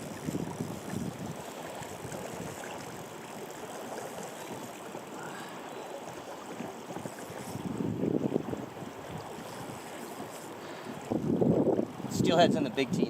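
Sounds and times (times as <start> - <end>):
river current rushing: 0.0 - 12.8.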